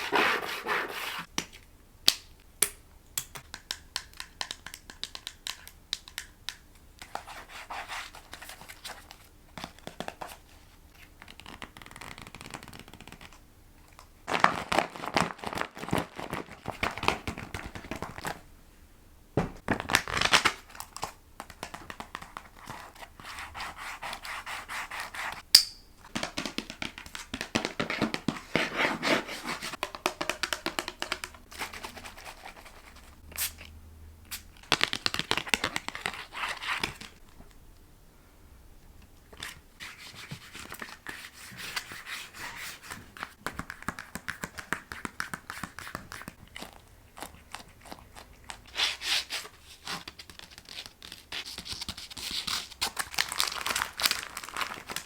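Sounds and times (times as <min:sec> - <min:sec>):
crisp taps and clicks: 0:01.3 - 0:07.3, 0:29.7 - 0:31.5, 0:43.4 - 0:46.4.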